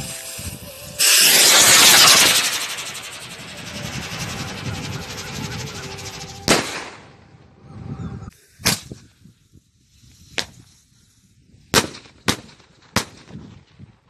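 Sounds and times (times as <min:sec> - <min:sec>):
firework bangs: 0:00.0 - 0:07.2.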